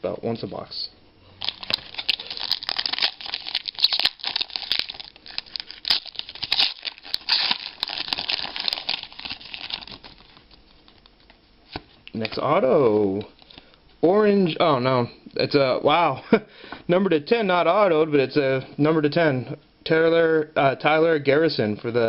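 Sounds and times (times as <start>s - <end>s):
foil wrapper tearing and crinkling: 1.4s - 11.2s.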